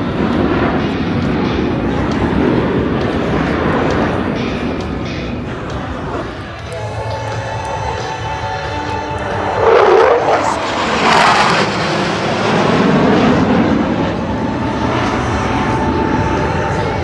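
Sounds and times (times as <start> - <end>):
fighter jet passing: 0.0 - 17.0.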